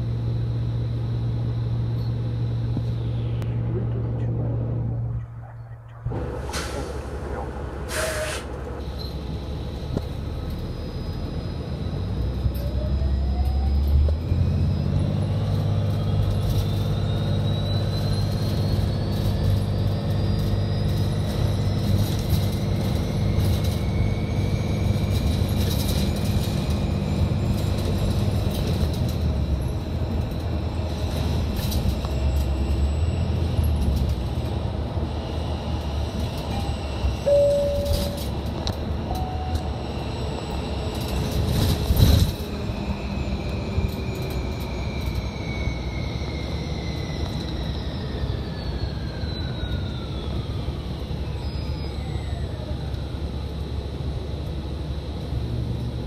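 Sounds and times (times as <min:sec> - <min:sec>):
electric train rumbling by: 0:00.0 - 0:56.0
rising train whine: 0:00.0 - 0:56.0
short tone: 0:36.5 - 0:38.4, 0:39.1 - 0:39.8.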